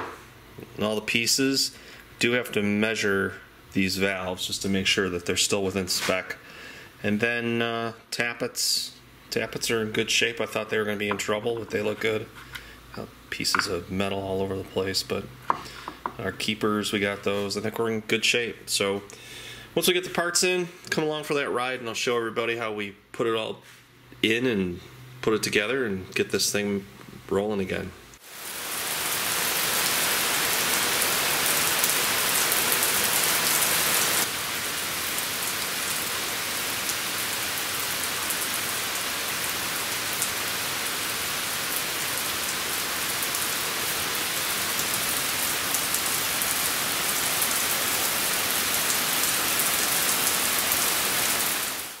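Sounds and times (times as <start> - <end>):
heavy rain on pavement: 28.2 - 52.0.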